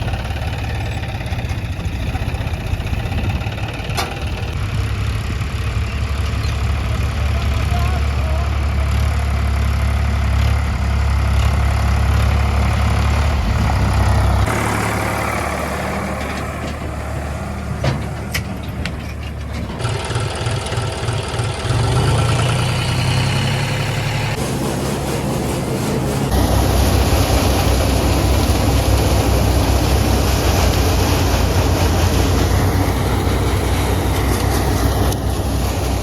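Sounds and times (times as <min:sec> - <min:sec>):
tractor diesel engine running: 0:00.0 - 0:36.0.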